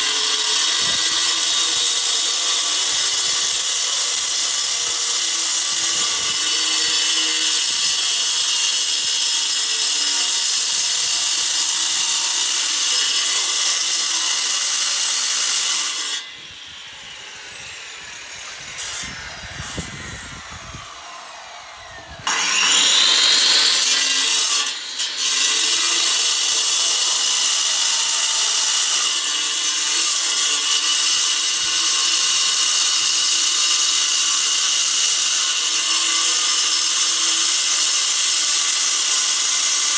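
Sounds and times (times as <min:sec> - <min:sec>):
electric power tool running: 0:13.9 - 0:26.7.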